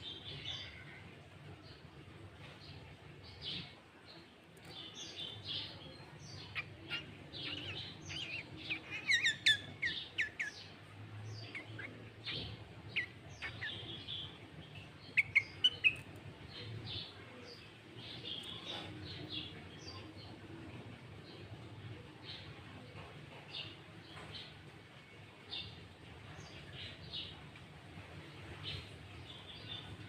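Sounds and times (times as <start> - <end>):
songbird singing chirps and whistles: 0.0 - 22.6.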